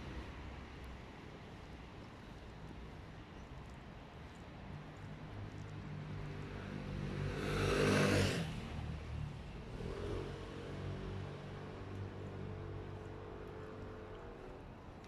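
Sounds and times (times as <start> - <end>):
vehicle passing by: 6.1 - 12.8.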